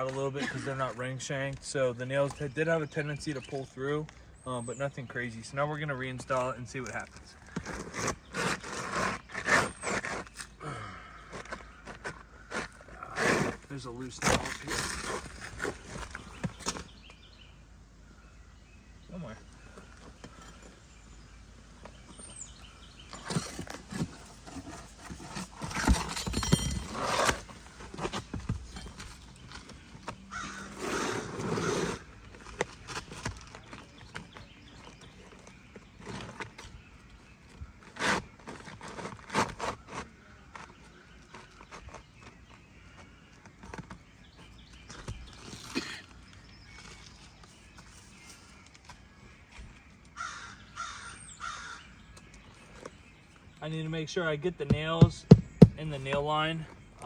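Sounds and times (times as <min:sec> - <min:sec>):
scraping on roof shingles: 0:06.2 - 0:17.0, 0:22.1 - 0:48.4
sharp knocks: 0:54.6 - 0:56.2
scuffing and tapping on roof: 0:54.6 - 0:56.3.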